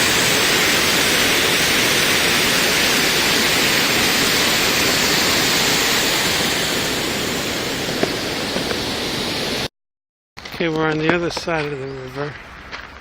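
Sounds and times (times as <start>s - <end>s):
water rushing over a dam: 0.0s - 9.7s.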